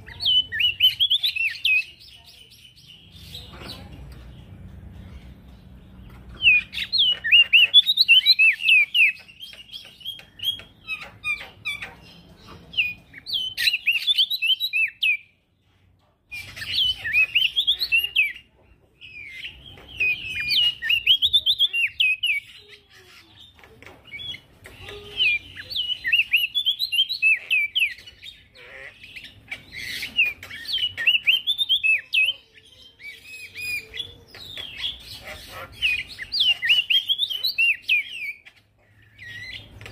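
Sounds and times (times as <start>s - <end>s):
songbird twittering: 16.4s - 39.9s.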